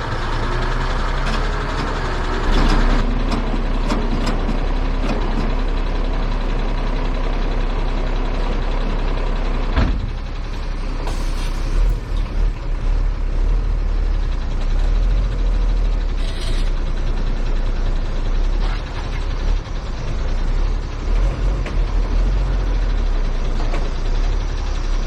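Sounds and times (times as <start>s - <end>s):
truck engine rumbling: 0.0s - 25.0s
air hiss: 11.1s - 11.9s.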